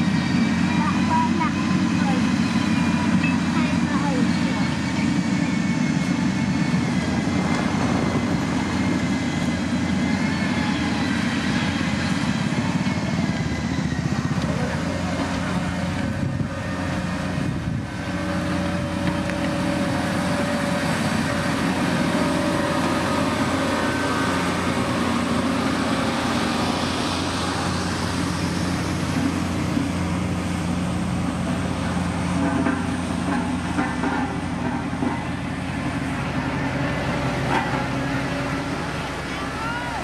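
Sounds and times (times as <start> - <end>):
diesel engine droning: 0.0 - 40.0.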